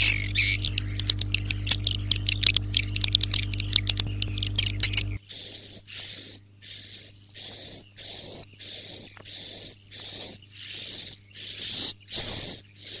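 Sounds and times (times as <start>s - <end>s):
faint low hum: 0.0s - 5.2s
high buzzy bird calls: 0.0s - 13.0s.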